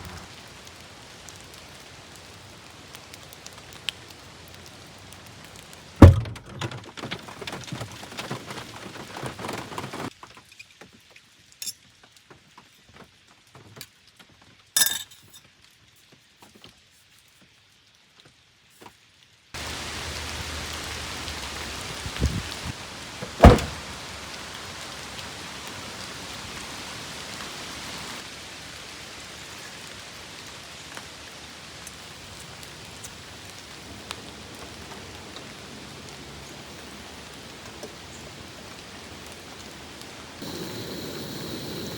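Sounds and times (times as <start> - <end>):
rain falling: 0.0 - 11.5, 19.0 - 41.9
sharp knocks: 6.0 - 6.6.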